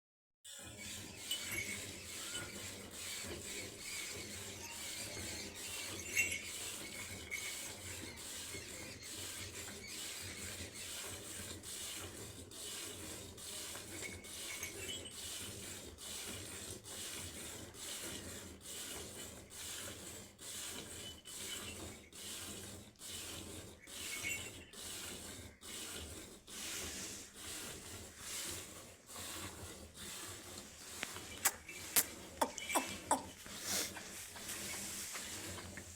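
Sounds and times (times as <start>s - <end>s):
milking machine pulsing hiss: 0.5s - 35.9s.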